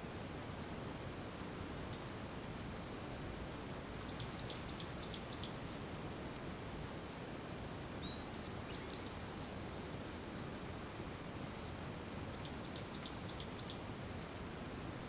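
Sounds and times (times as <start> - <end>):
small bird chirping: 4.1 - 5.6, 8.0 - 9.1, 12.4 - 13.8.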